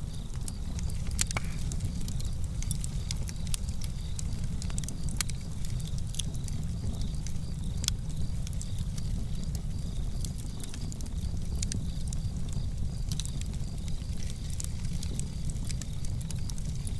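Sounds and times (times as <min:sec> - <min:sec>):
fire crackling and snapping: 0:00.0 - 0:16.9
low rumble of flames: 0:00.0 - 0:16.9.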